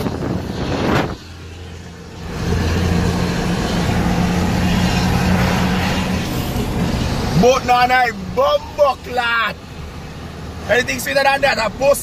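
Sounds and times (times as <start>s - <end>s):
wind noise rush: 0.0s - 8.5s
diesel engine running: 0.0s - 12.0s.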